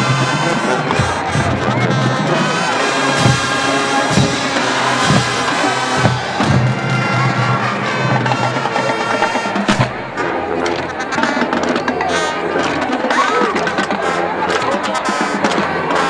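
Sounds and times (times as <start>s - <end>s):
bass drum strokes: 0.0s - 10.2s
brass chords: 0.0s - 16.0s
drumline: 0.0s - 16.0s.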